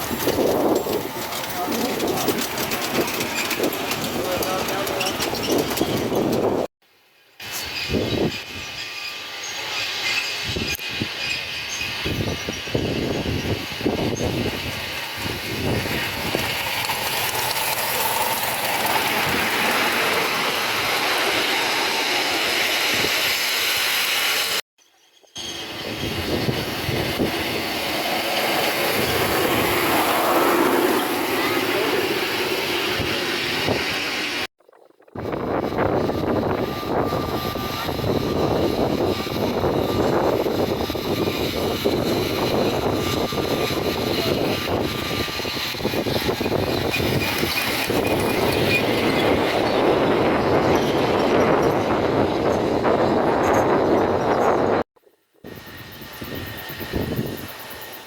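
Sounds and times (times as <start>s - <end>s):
miniature train rumbling on track: 0.0s - 6.7s, 7.4s - 24.6s, 25.4s - 34.5s, 35.2s - 54.8s, 55.4s - 58.0s
wheels clattering over rails: 0.0s - 6.7s, 9.9s - 22.8s, 38.1s - 54.7s.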